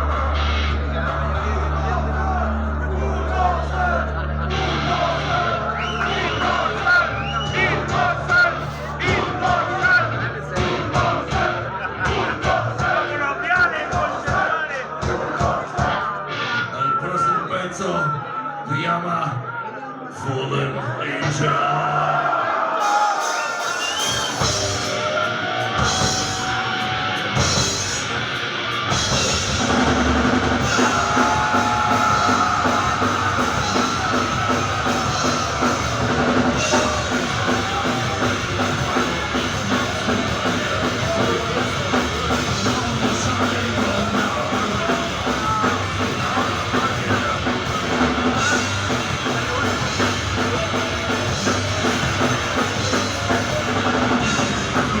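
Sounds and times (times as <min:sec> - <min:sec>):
heavy metal band playing live: 0:00.0 - 0:16.9, 0:21.2 - 0:55.0.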